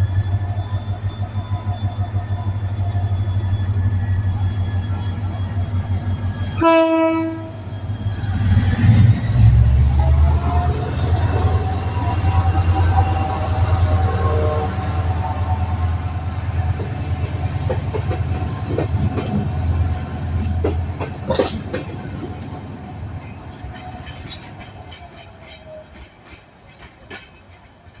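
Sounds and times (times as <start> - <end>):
locomotive engine hum: 0.0 - 26.0
train wheels clicking on rails: 15.1 - 28.0.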